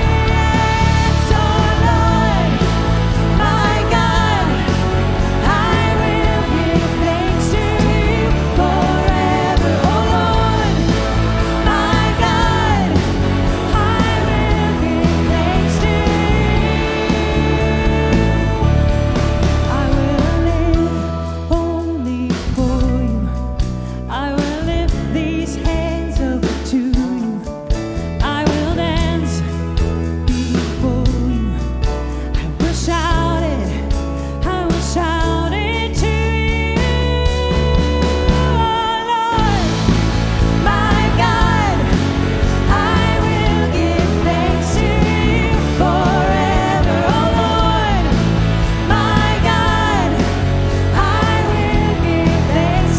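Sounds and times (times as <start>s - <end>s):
person singing: 0.0s - 29.5s, 32.4s - 52.9s
bass: 0.0s - 52.9s
guitar: 0.0s - 52.9s
steady drums: 0.0s - 52.9s.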